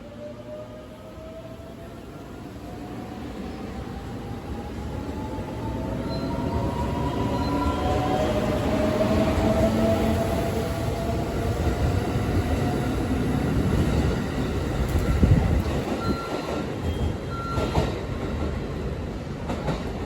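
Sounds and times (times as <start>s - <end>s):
train clunks: 14.6s - 18.7s.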